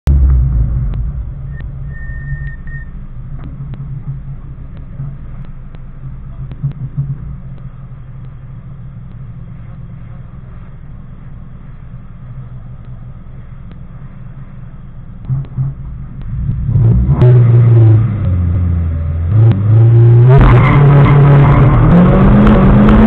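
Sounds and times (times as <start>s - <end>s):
car engine idling: 0.0s - 17.1s
brief high tone: 1.5s - 3.0s
light ticks: 7.5s - 8.4s, 9.0s - 9.3s, 12.8s - 13.0s, 13.6s - 13.9s, 15.2s - 16.4s.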